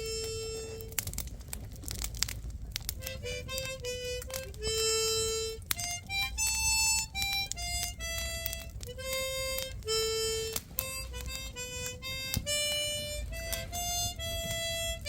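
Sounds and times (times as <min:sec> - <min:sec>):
harmonica playing slow melody: 0:00.0 - 0:01.1, 0:03.0 - 0:15.0.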